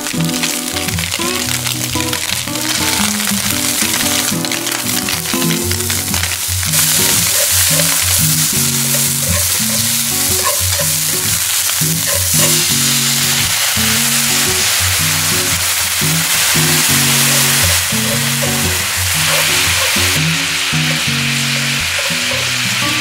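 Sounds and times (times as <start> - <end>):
background music: 0.0 - 23.0
food sizzling in frying pan: 0.0 - 23.0.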